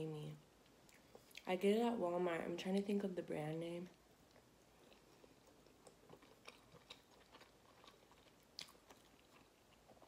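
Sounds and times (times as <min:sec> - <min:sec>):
chewing soft food: 0:00.4 - 0:01.5, 0:03.9 - 0:10.0.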